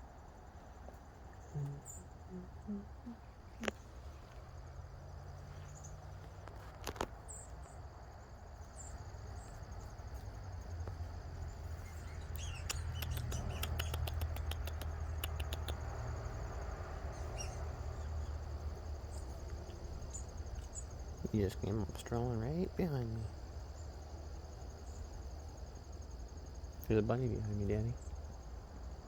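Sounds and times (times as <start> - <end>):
faint high chirps: 11.8 - 15.9
sharp clicks: 12.3 - 15.8.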